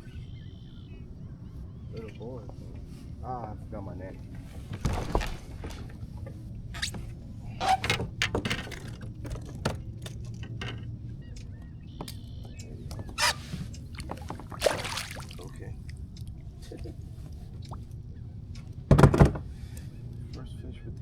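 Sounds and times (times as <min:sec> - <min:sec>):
small water splashes: 0:12.1 - 0:18.7.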